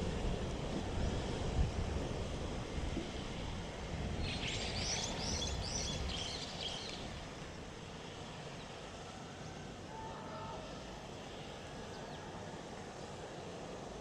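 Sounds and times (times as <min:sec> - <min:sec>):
outdoor noise: 0:00.0 - 0:14.0
small bird chirping: 0:04.2 - 0:07.0.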